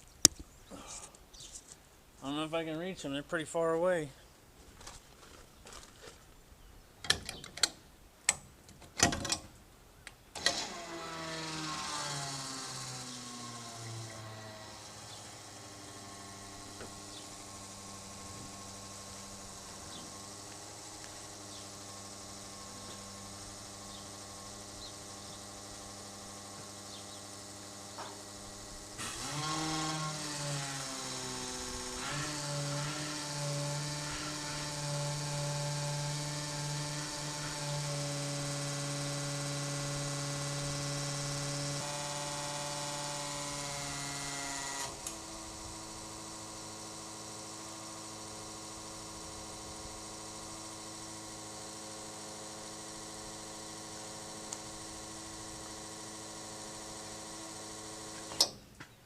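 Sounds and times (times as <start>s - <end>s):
electric pump whining: 10.3s - 58.7s
steady low hum: 13.0s - 58.3s.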